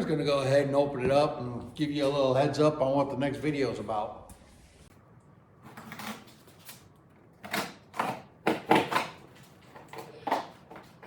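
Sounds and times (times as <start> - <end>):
tape and cardboard ripping: 5.6 - 11.0.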